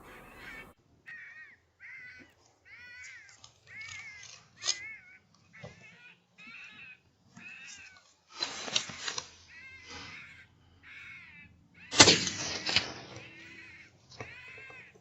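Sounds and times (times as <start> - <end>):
rifle shot: 11.9 - 13.6.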